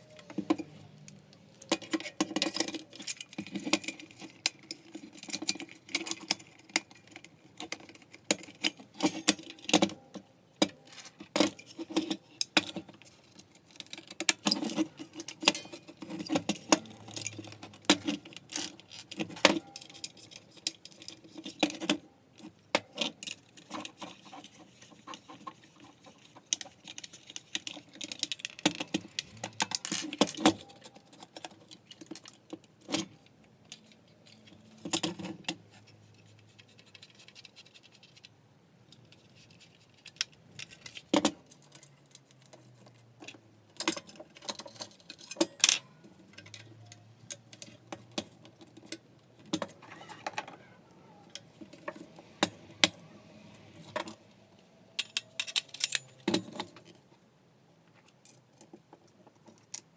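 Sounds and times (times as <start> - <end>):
small parts clicking and rattling: 0.0 - 57.2, 57.8 - 59.9.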